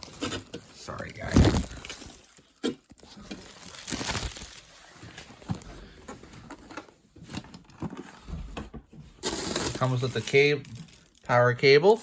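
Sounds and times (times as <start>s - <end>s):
packaging rustling: 0.0s - 5.6s, 9.2s - 12.0s.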